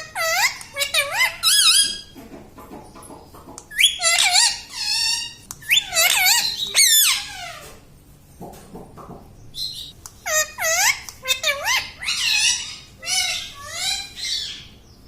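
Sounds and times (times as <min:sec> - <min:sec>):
parrot squeaky calls: 0:00.0 - 0:02.2, 0:03.7 - 0:07.7, 0:09.6 - 0:14.7.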